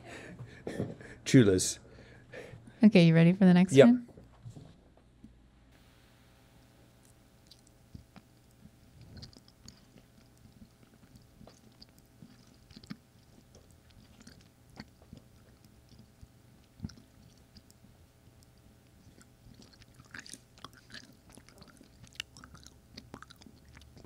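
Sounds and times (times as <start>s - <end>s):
person chewing candy: 7.0s - 24.0s.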